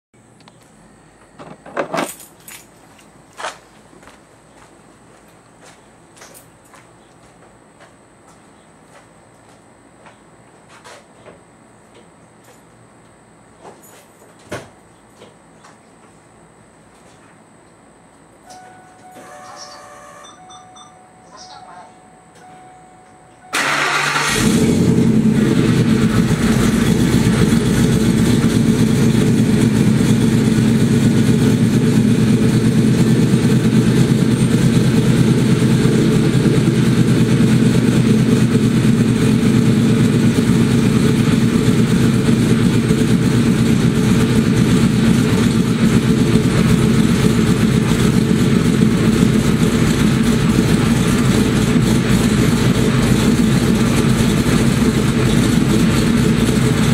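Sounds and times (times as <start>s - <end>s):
truck engine starting and idling: 23.4s - 56.9s.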